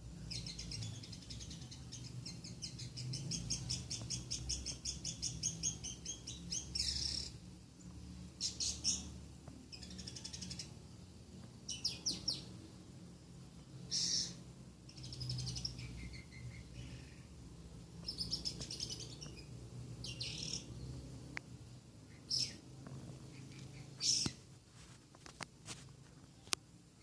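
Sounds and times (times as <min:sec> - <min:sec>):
lovebird chirping: 0:00.0 - 0:10.8, 0:11.6 - 0:12.7, 0:13.8 - 0:21.1, 0:22.1 - 0:24.5.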